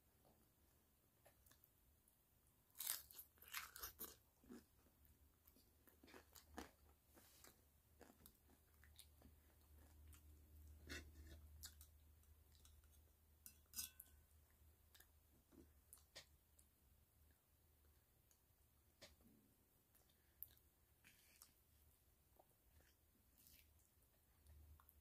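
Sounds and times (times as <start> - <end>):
person crunching crisp tortilla shell: 2.7 - 4.8, 5.5 - 13.0.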